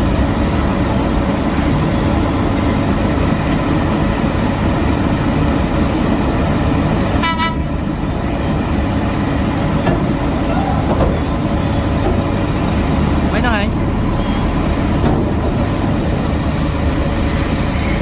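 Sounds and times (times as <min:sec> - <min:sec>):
heavy machinery engines running: 0:00.0 - 0:18.0
short horn toot: 0:07.2 - 0:07.7.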